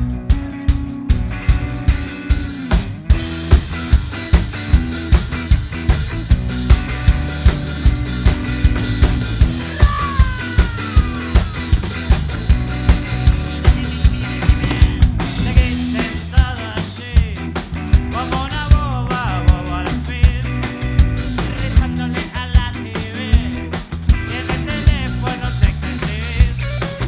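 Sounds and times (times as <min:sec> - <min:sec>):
bass: 0:00.0 - 0:27.0
drum kit beat: 0:00.0 - 0:27.0.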